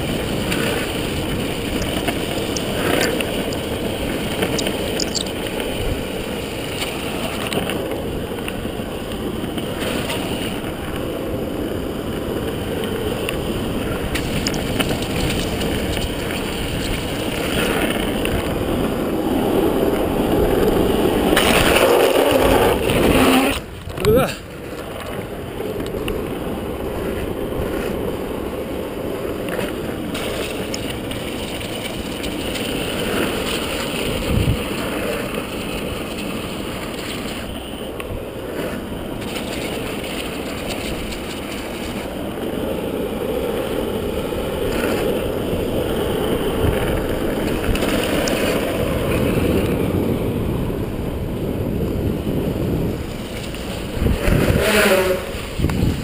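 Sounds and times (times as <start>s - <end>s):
water noise: 0.0s - 56.0s
wind on microphone: 0.0s - 56.0s.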